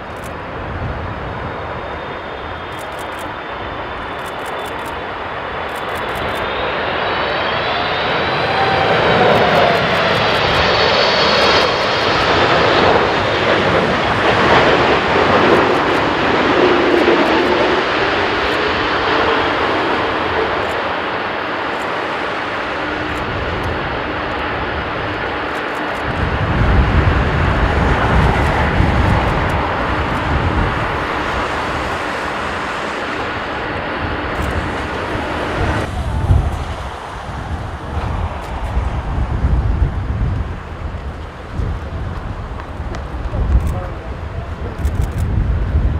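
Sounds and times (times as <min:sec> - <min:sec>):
jet engines whining: 0:00.0 - 0:45.9
heavy low rumble: 0:26.0 - 0:45.9.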